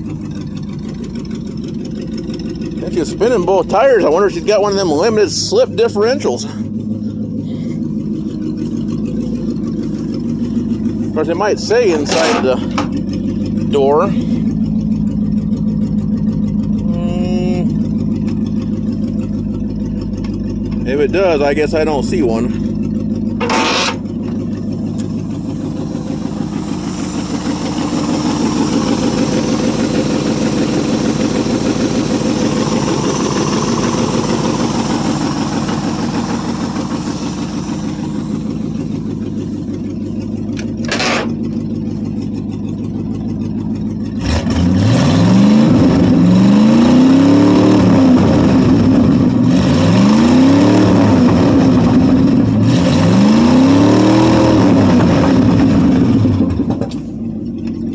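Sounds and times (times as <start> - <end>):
pickup engine revving: 0.0 - 57.3.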